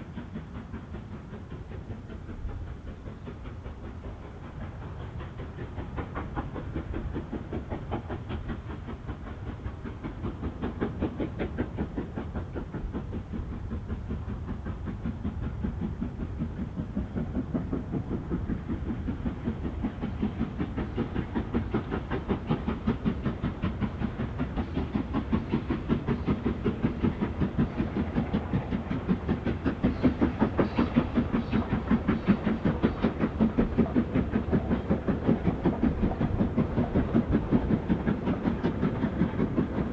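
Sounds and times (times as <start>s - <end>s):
steam locomotive exhaust beats: 0.0s - 39.9s.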